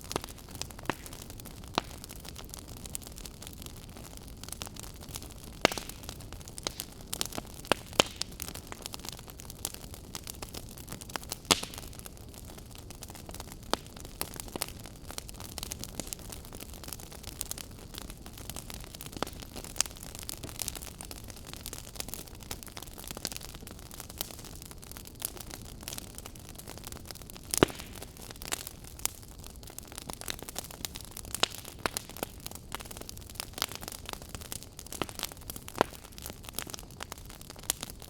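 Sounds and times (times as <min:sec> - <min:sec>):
wood fire crackling and popping: 0:00.0 - 0:38.0.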